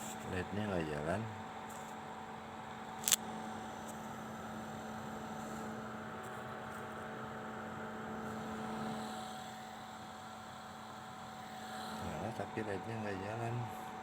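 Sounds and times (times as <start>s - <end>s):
electrical hum: 11.2s - 14.0s.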